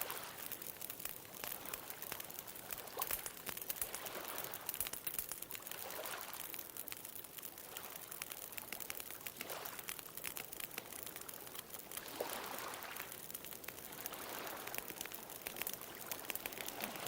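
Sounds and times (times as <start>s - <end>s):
bonfire crackling and popping: 0.0s - 17.0s
ocean waves: 12.0s - 13.2s, 13.8s - 17.0s.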